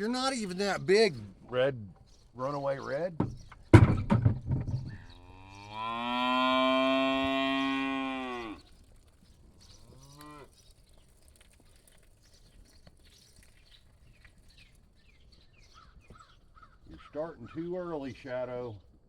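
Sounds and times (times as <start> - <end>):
cow mooing: 5.2 - 8.6.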